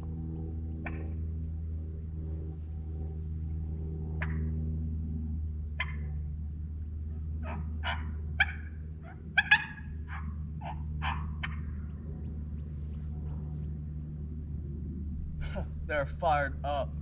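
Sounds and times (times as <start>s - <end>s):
turkey call clucks: 7.4s - 11.8s.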